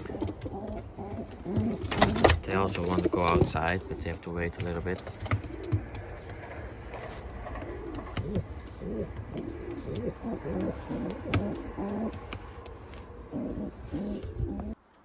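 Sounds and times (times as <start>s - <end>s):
pigeons cooing: 0.0s - 14.8s.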